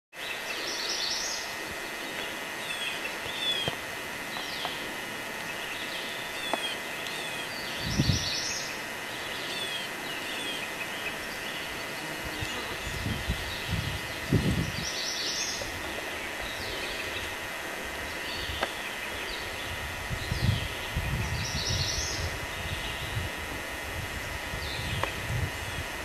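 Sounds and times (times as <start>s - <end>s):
background hiss: 0.2s - 26.0s
wild birds singing: 0.2s - 26.0s.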